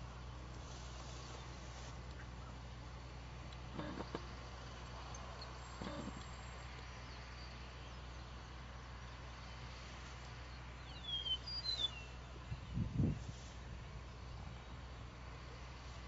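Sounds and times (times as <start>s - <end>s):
steady low hum: 0.0s - 16.0s
small bird chirping: 10.8s - 12.8s.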